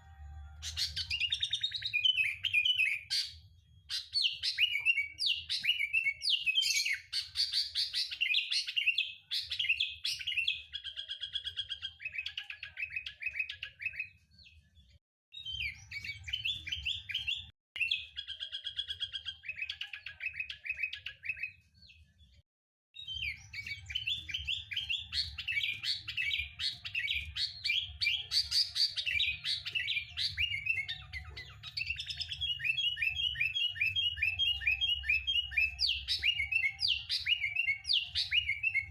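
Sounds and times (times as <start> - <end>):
bulbul singing: 0.0 - 14.2, 23.0 - 38.9.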